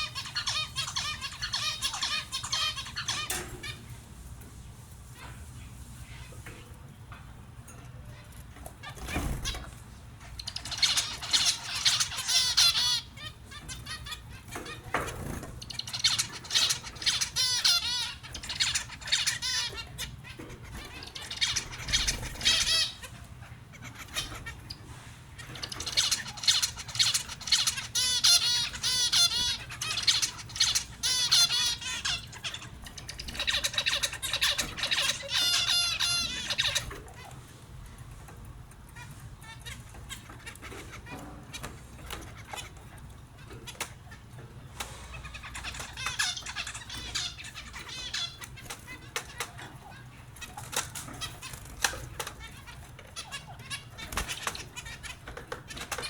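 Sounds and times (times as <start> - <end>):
finches twittering: 0.0 - 3.9, 8.0 - 37.4, 38.8 - 56.0.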